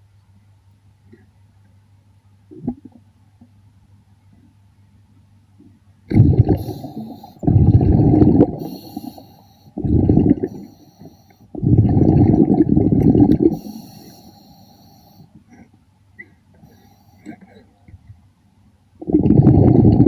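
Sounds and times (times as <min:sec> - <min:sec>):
diver's breath bubbling underwater: 0:06.1 - 0:10.8, 0:11.6 - 0:14.1, 0:19.0 - 0:20.0.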